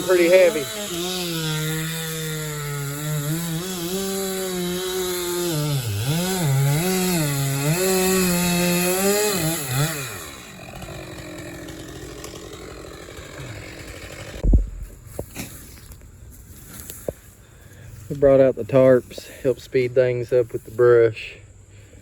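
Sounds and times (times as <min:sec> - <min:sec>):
chainsaw cutting logs: 0:00.0 - 0:19.4.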